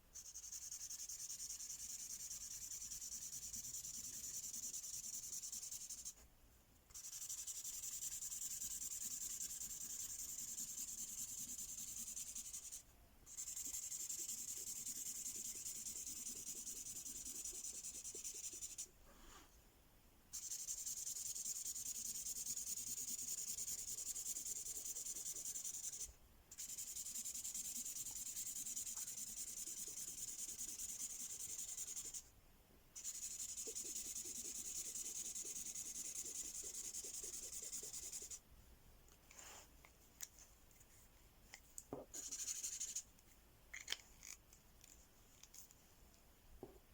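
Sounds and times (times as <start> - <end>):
marker pen rubbing on paper: 0.2 - 6.2, 6.9 - 18.9, 20.4 - 32.2, 33.0 - 38.4, 42.1 - 43.0.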